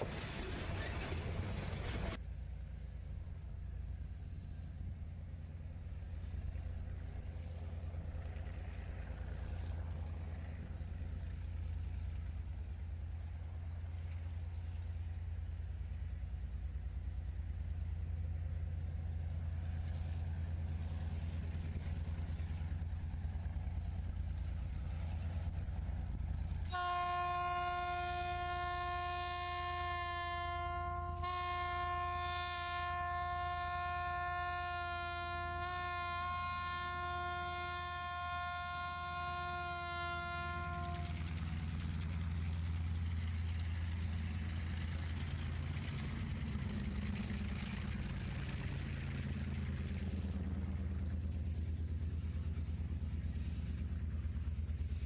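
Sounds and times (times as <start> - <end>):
low engine rumble: 0.0 - 55.0
locomotive air horn: 26.6 - 41.4.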